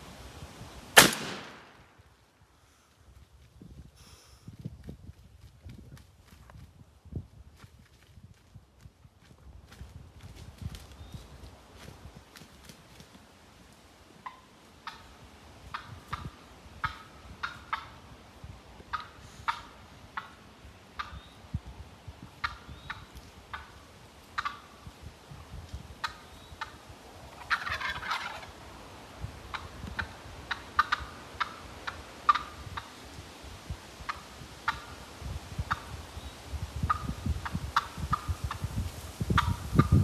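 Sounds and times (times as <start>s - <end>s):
turkey clucking: 14.2s - 18.0s, 18.9s - 20.4s, 24.4s - 24.7s, 26.0s - 28.6s, 29.5s - 32.9s
turkey gobbling: 14.2s - 18.0s, 18.9s - 20.4s, 24.4s - 24.8s, 26.0s - 28.6s, 29.5s - 32.9s, 34.1s - 35.0s, 36.9s - 38.6s.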